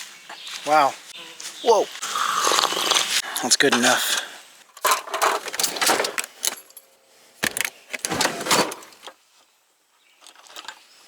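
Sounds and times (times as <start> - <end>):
camp gear clinking and rattling: 2.6 - 9.2, 10.1 - 11.0.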